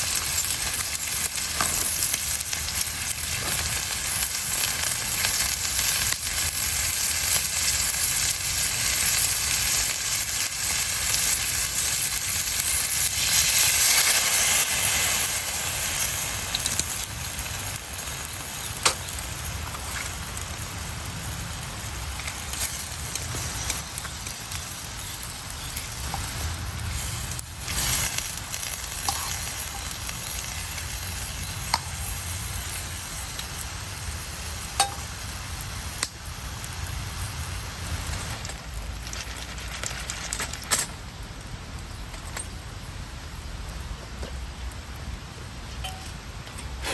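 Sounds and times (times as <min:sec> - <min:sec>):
food sizzling in oil: 0:00.0 - 0:46.9
sharp pops of oil: 0:36.0 - 0:36.2.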